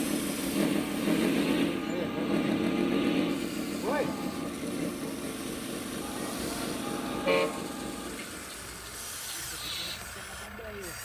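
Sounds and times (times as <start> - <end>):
low running noise: 0.0 - 9.4
toy truck horn toot: 6.8 - 7.8.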